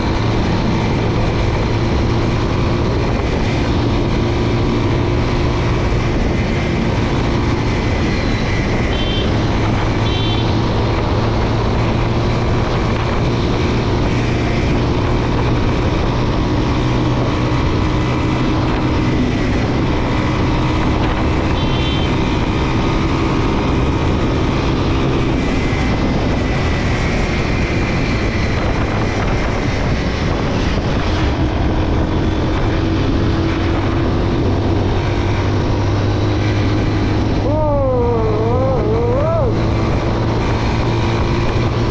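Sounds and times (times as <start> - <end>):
motorcycle engine running: 0.0 - 41.9
wind and road noise: 0.0 - 41.9.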